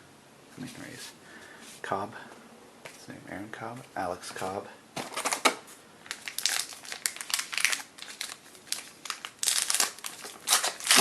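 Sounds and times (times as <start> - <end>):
trading cards crinkling and rustling: 5.0 - 11.0.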